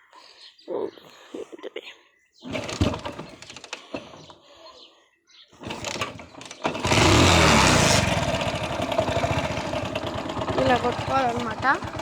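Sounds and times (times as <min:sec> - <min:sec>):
motorcycle engine revving: 0:02.4 - 0:04.3, 0:05.6 - 0:12.0
motorcycle kick-start: 0:02.4 - 0:04.4, 0:05.6 - 0:12.0.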